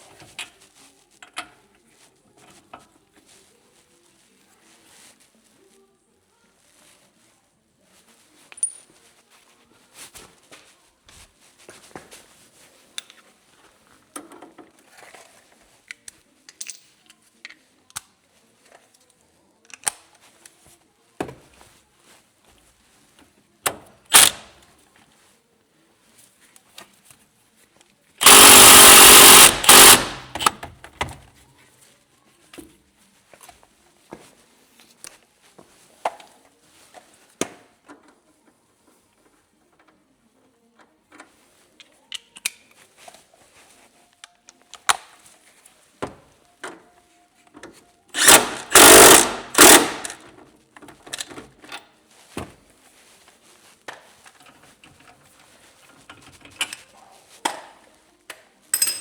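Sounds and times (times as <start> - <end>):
power tool burst: 24.1 - 24.5, 28.2 - 30.6, 48.2 - 50.2
tools and metal parts clicking: 48.2 - 50.2.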